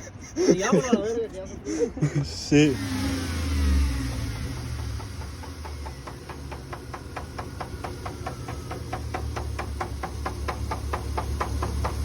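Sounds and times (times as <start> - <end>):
engine knocking: 2.8 - 12.0.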